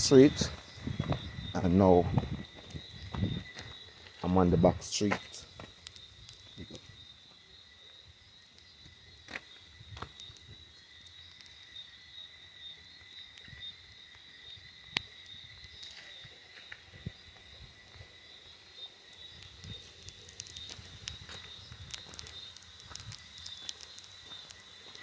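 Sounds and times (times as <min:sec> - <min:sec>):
footsteps on wet ground: 0:00.0 - 0:07.4, 0:09.3 - 0:10.6, 0:19.2 - 0:25.0
insects chirring: 0:00.0 - 0:25.0
faint clicks: 0:21.8 - 0:25.0.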